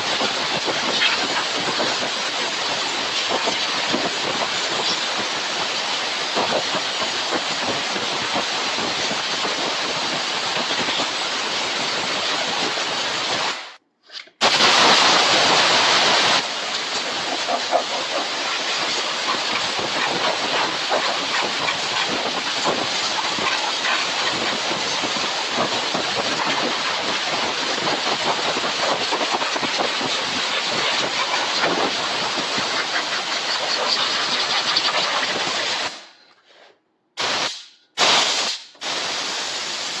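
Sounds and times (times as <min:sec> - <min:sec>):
compressed air hissing: 0:14.4 - 0:36.1, 0:37.2 - 0:40.0.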